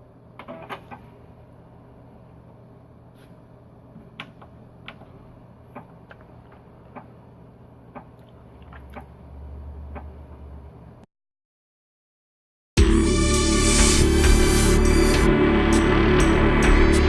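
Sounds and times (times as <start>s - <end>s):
low electrical hum: 0.0s - 11.1s.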